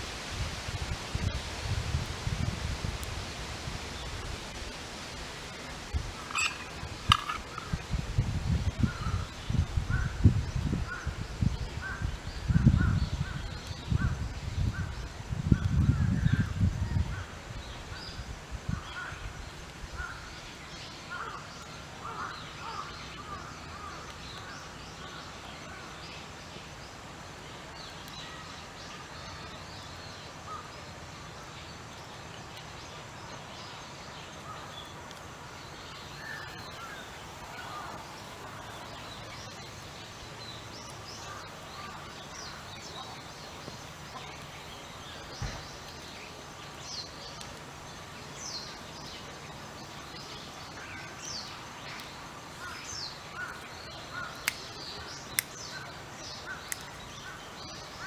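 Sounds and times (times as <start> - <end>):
outdoor background noise: 0.0 - 58.0
birds calling: 5.4 - 8.0, 34.4 - 58.0.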